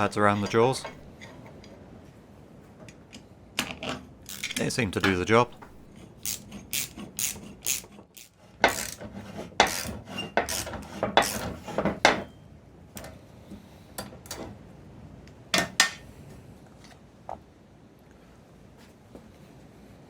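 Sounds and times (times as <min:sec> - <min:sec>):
rasping ratchet strokes: 0:04.3 - 0:04.7, 0:05.9 - 0:11.8.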